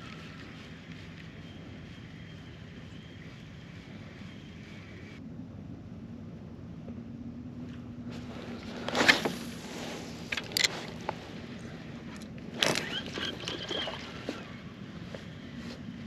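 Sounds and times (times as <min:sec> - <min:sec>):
water lapping against hull: 0:08.2 - 0:16.0.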